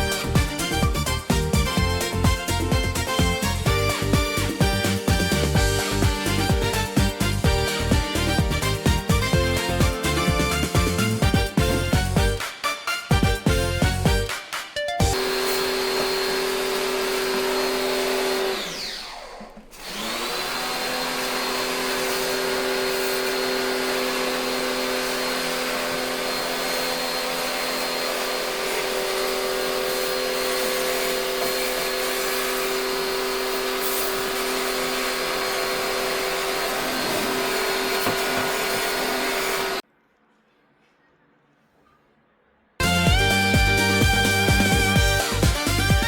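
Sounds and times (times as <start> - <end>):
vacuum cleaner motor whining: 15.2 - 39.8.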